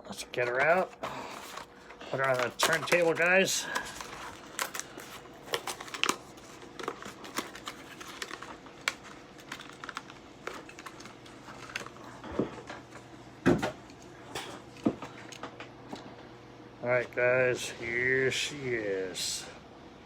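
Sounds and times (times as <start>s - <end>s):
plastic packaging crackling: 0.1s - 12.2s.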